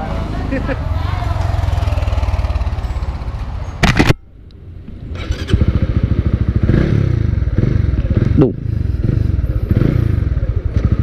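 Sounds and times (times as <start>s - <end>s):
motorcycle engine running: 1.1s - 3.6s, 5.1s - 11.0s.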